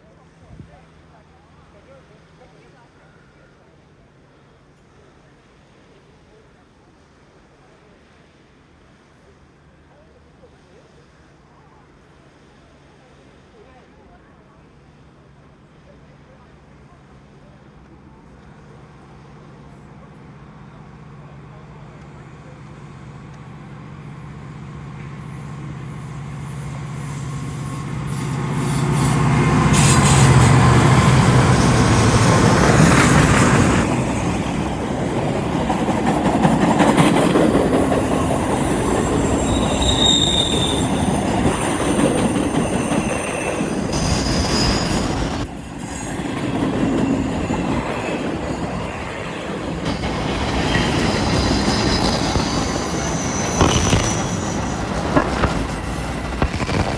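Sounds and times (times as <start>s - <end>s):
diesel locomotive engine hum: 0.0s - 56.9s
train wheels squealing: 25.2s - 33.7s, 37.1s - 56.1s.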